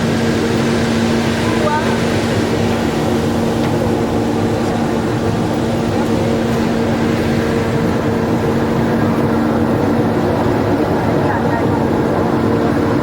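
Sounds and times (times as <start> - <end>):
ferry engine droning: 0.0 - 13.0.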